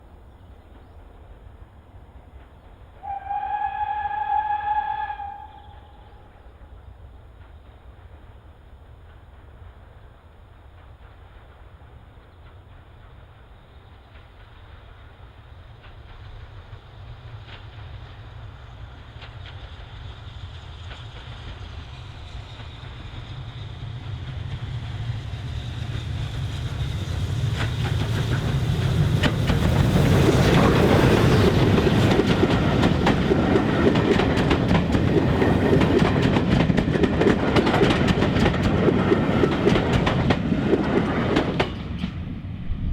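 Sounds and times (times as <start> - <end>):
steam train rumbling past: 0.0 - 42.9
wheels clicking over rail joints: 27.5 - 42.2.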